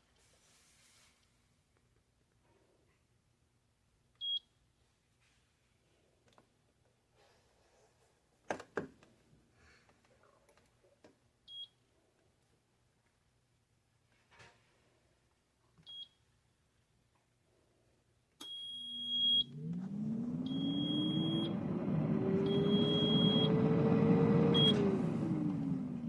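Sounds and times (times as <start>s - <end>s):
air fryer beeping: 18.4s - 26.0s
air fryer fan whirring: 19.1s - 26.0s.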